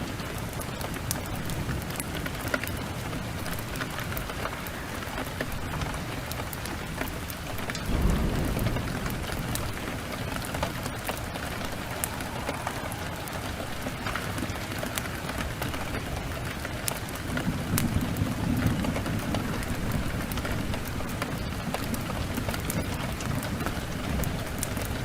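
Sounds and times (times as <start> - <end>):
steady rain: 0.0 - 25.0
wood fire crackling: 0.0 - 25.0
low rumble: 7.8 - 14.6.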